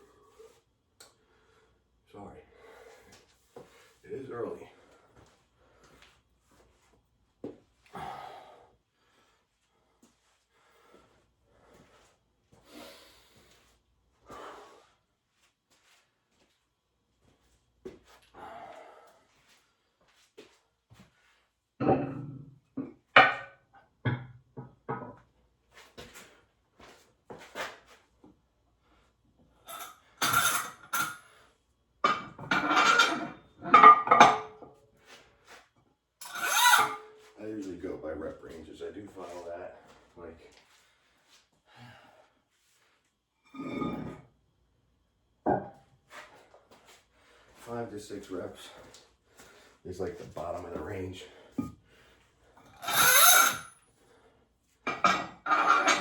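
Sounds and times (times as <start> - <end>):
man breathing heavily: 2.5 - 4.0, 7.9 - 15.1, 18.3 - 19.9, 40.7 - 42.5, 48.7 - 49.8
metal weights clanking: 55.0 - 56.0.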